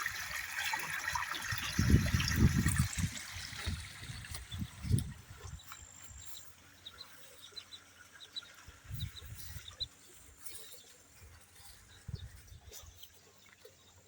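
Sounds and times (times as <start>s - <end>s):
ducklings peeping: 4.4s - 13.6s.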